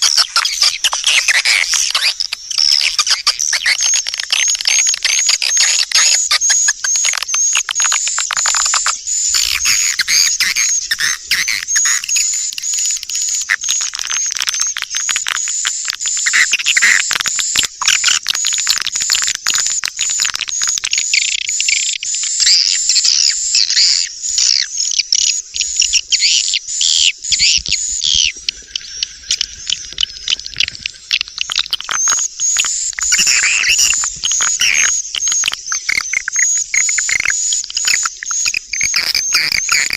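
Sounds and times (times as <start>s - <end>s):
swiftlets twittering: 6.2s - 14.7s, 25.6s - 39.9s.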